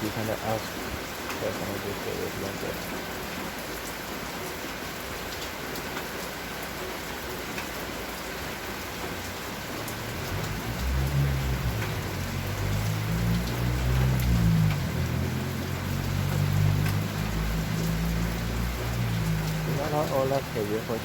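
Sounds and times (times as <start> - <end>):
rain pattering: 0.0 - 21.0.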